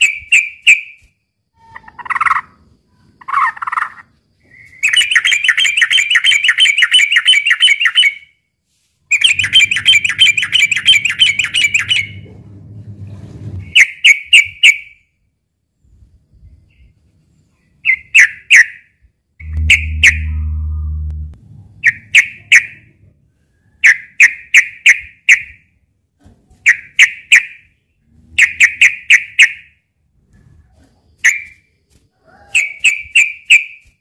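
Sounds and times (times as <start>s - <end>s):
faint low hum: 9.1s - 13.8s, 19.4s - 23.8s.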